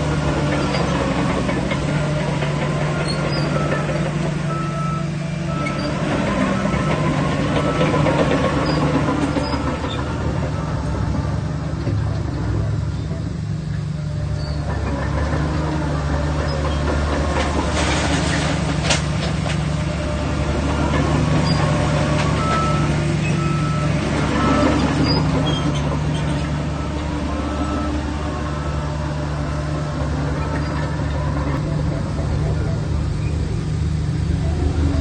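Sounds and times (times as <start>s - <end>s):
bulldozer diesel engine running: 0.0s - 35.0s
reversing alarm beeping: 2.8s - 11.5s, 20.8s - 33.4s.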